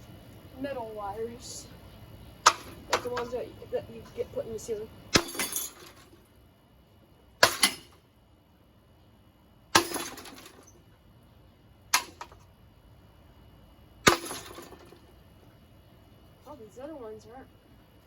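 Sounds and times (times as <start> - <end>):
ceiling fan rattle: 2.4 - 6.3.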